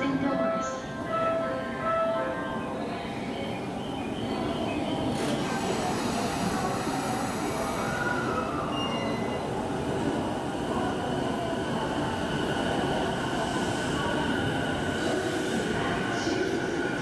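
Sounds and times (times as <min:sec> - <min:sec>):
electric train running rumble: 0:03.6 - 0:17.0.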